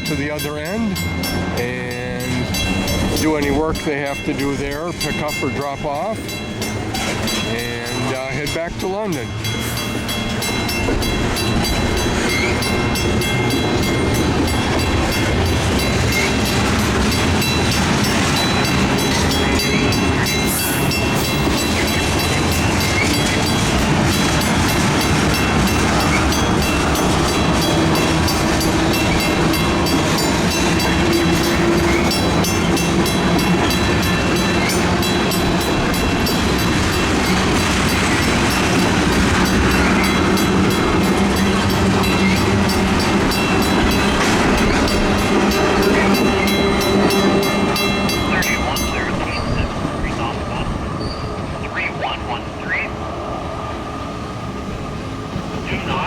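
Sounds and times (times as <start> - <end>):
freight train wheels rumbling: 0.0 - 56.0
train clickety-clack: 0.0 - 56.0.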